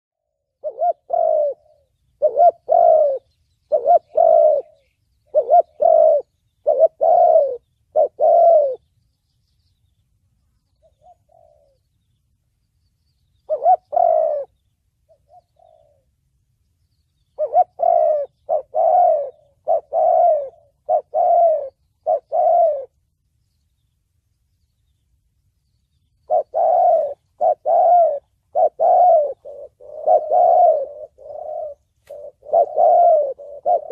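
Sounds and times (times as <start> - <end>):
dove cooing: 0.3 - 8.9, 10.8 - 11.9, 13.4 - 16.1, 17.3 - 23.0, 26.2 - 33.9.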